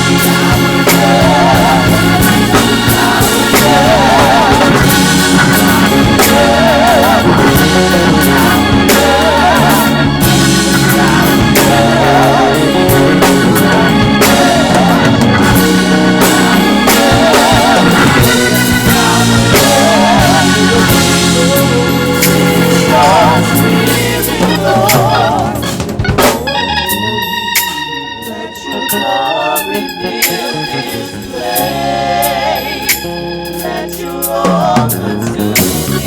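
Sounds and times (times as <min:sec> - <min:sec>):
drums with sharp hits: 0:00.0 - 0:26.6
organ with vibrato: 0:00.0 - 0:36.0
steady bass: 0:00.0 - 0:36.0.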